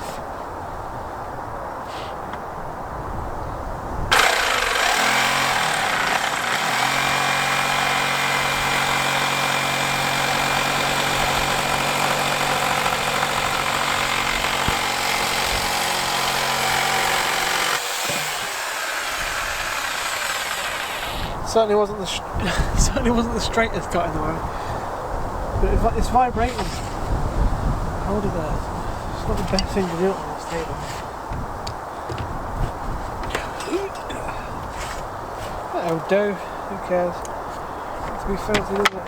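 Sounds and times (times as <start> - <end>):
electric jigsaw cutting: 4.1 - 21.4, 26.5 - 27.0.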